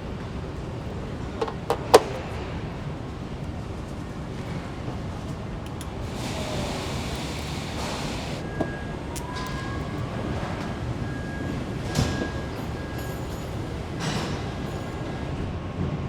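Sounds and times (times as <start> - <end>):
machinery rumble: 5.7 - 8.4
hiss: 6.0 - 8.4.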